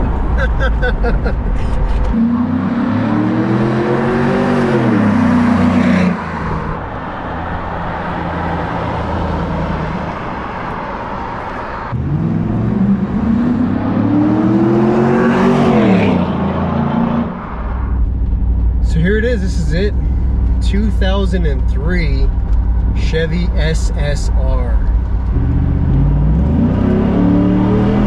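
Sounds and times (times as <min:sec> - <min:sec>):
car engine accelerating past: 0:25.2 - 0:28.0.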